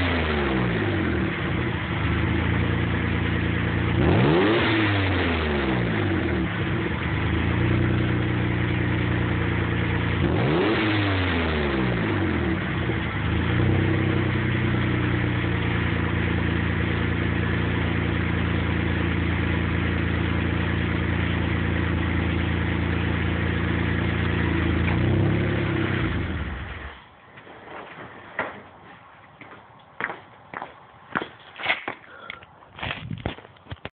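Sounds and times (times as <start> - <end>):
car engine revving and idling: 0.0 - 27.0.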